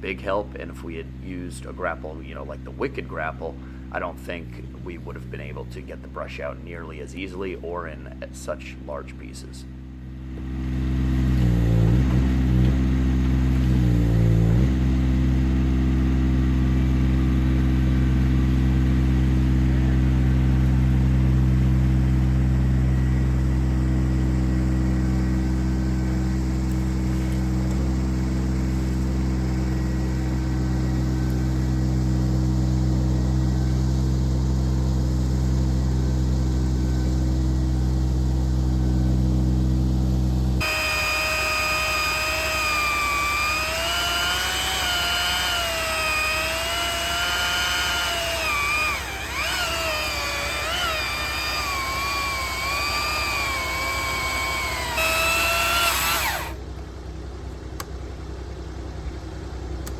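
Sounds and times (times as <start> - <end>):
engine running at high speed: 9.9 - 56.6.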